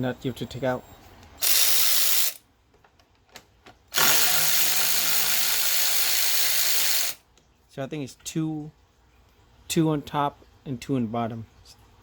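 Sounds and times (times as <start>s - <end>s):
power tool running: 1.4s - 2.4s, 3.9s - 7.2s.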